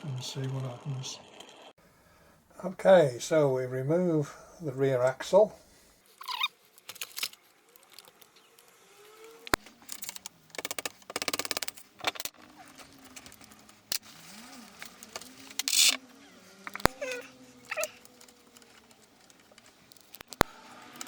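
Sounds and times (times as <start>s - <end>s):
metal parts clicking: 6.8s - 8.7s, 9.8s - 14.1s, 14.8s - 16.0s.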